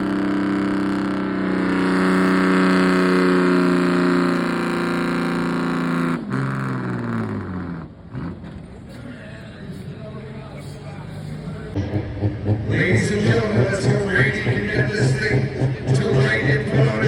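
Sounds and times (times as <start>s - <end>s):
truck engine at full throttle: 0.0s - 17.0s.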